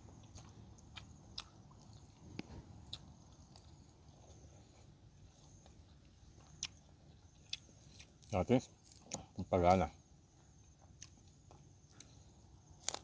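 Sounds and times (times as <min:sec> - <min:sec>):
faint chewing: 0:00.0 - 0:09.6, 0:10.3 - 0:13.0.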